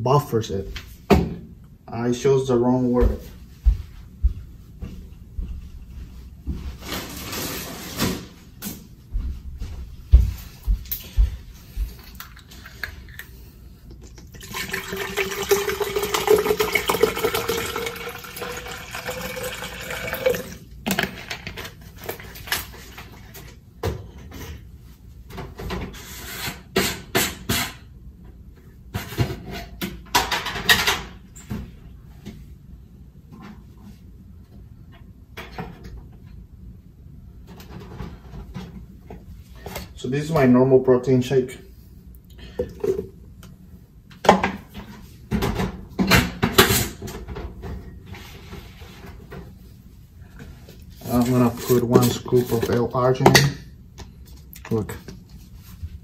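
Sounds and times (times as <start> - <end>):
water running into a bottle: 14.0 - 20.6.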